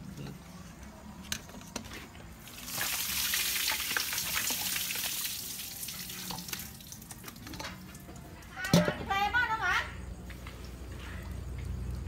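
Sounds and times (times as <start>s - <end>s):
food sizzling in hot oil: 2.4s - 7.5s.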